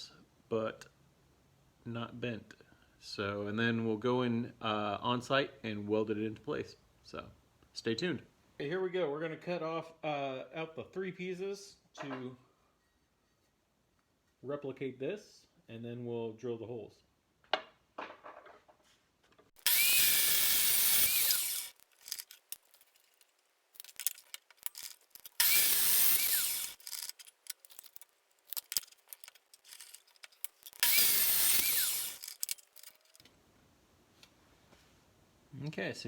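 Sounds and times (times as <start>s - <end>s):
power saw cutting steel: 19.6s - 23.1s, 23.8s - 33.2s.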